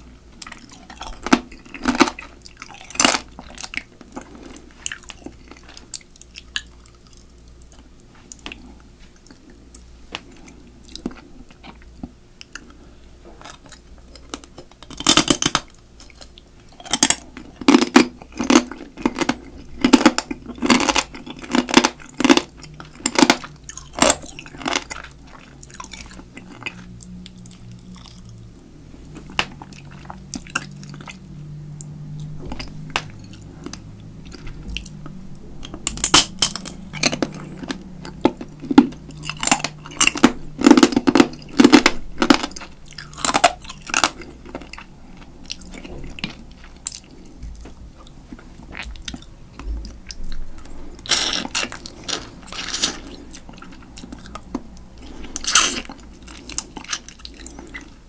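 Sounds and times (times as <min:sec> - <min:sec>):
crab shell crunching: 0:00.4 - 0:07.8, 0:13.4 - 0:28.4, 0:32.1 - 0:58.0.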